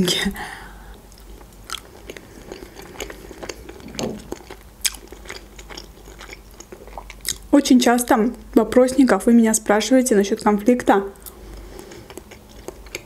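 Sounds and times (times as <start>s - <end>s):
person chewing: 1.1s - 7.5s, 11.2s - 13.0s.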